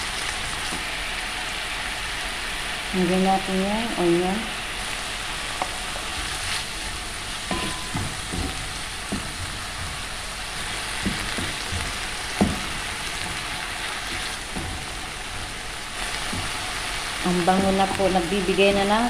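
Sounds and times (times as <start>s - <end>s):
food sizzling in hot oil: 0.0s - 19.0s
utensil knocking against pan: 7.5s - 10.0s, 11.0s - 13.4s.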